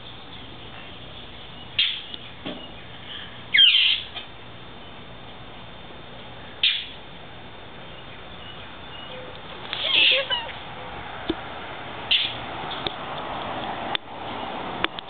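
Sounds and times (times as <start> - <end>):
bird calling in short bursts: 3.5 - 4.1, 9.8 - 10.5.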